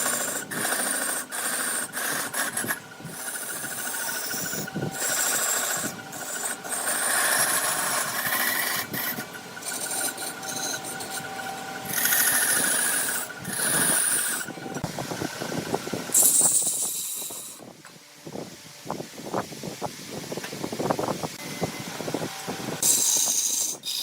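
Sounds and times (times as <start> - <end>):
tool scraping spinning wood: 0.0 - 17.6
wood lathe humming: 0.0 - 17.6.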